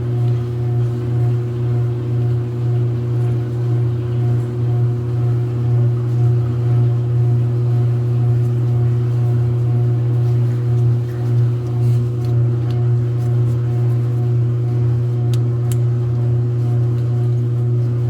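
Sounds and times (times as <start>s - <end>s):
clothes dryer running: 0.0s - 18.0s.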